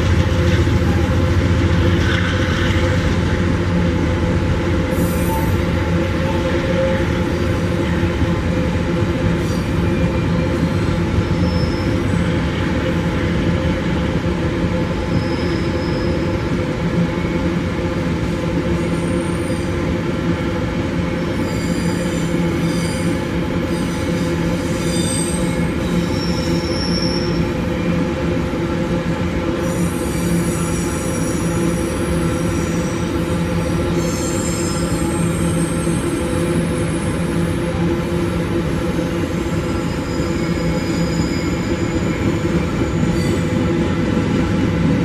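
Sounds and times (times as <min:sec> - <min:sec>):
wheels rumbling on track: 0:00.0 - 0:21.3
high-pitched wheel squeals: 0:11.3 - 0:12.2, 0:21.4 - 0:27.4, 0:29.7 - 0:37.2, 0:39.6 - 0:42.2.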